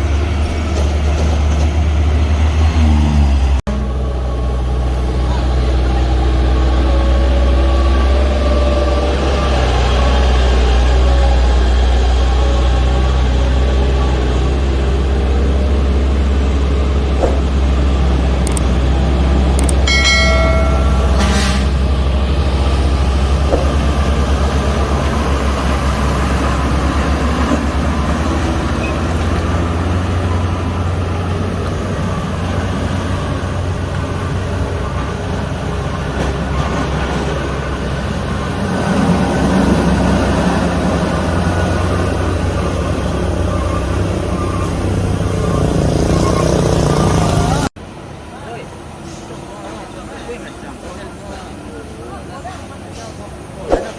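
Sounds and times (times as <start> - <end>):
diesel truck engines running: 0.0 - 53.9
vehicle horn: 20.4 - 21.9.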